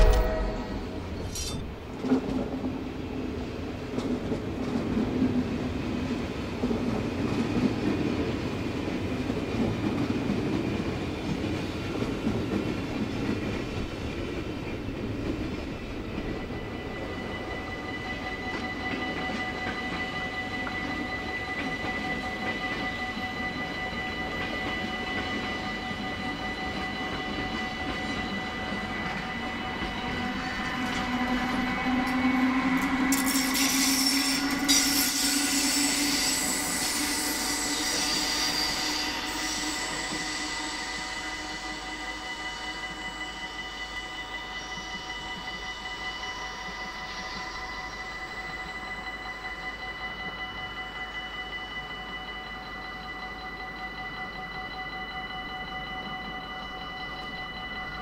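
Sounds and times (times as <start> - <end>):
passenger train passing: 0.0 - 58.0
level crossing warning bells: 15.2 - 58.0.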